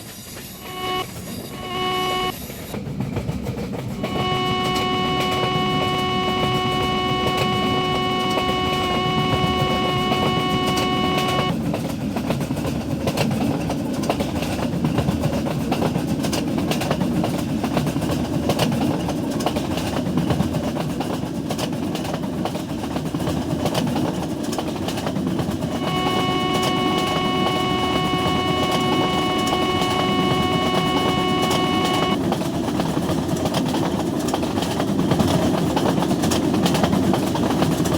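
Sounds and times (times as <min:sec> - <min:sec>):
locomotive horn blast: 0:00.4 - 0:02.4, 0:03.9 - 0:11.6, 0:25.4 - 0:32.2
train wheels rumbling on rails: 0:02.3 - 0:37.9.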